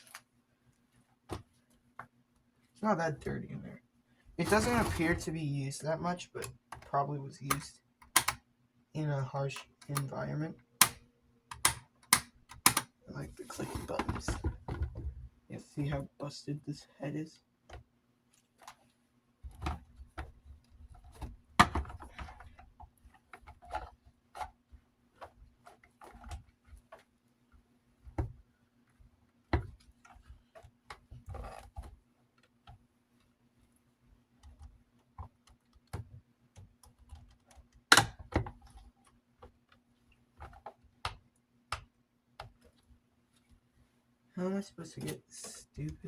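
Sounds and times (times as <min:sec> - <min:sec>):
plastic and metal parts clicking: 0:07.5 - 0:08.4, 0:10.8 - 0:12.9.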